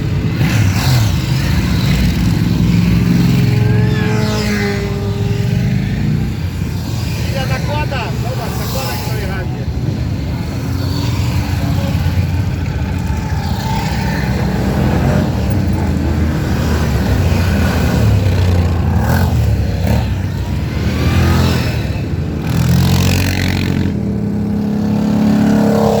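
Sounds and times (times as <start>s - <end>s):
motorcycle engines droning: 0.0s - 26.0s
motorcycles revving and passing: 0.0s - 26.0s.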